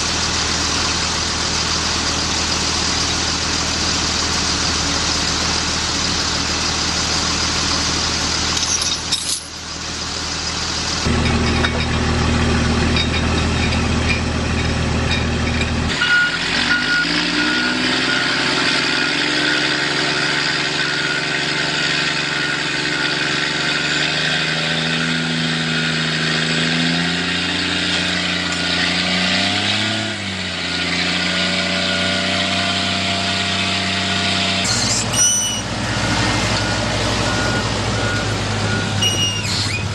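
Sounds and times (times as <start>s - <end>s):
heavy vehicle engines running: 0.0s - 39.9s
engine revving: 15.8s - 39.9s.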